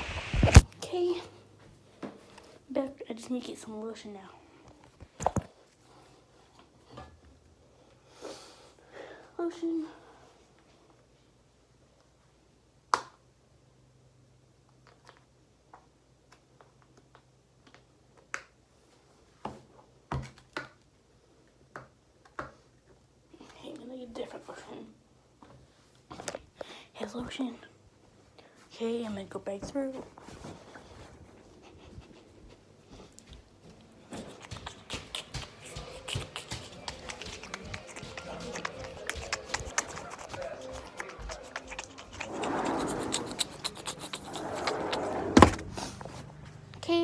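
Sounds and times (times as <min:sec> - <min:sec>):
footsteps walking: 0:32.3 - 0:46.6.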